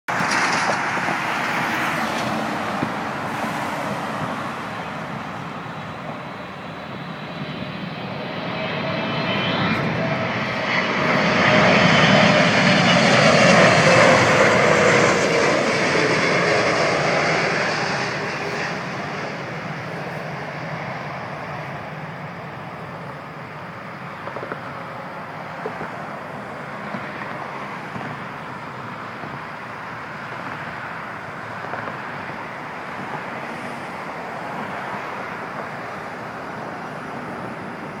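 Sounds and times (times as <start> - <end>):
distant jet engine noise: 0.1 - 38.0.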